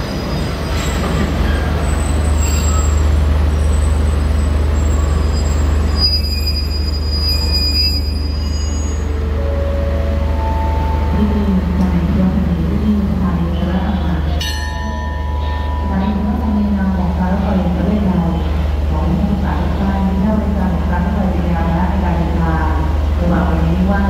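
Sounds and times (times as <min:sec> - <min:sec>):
train coaches rumbling past: 0:00.0 - 0:24.0.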